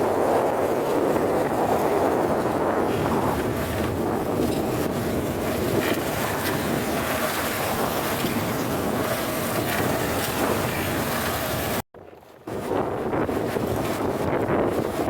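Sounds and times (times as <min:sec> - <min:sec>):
motorboat running: 0:00.0 - 0:15.0
wind buffeting microphone: 0:00.0 - 0:15.0.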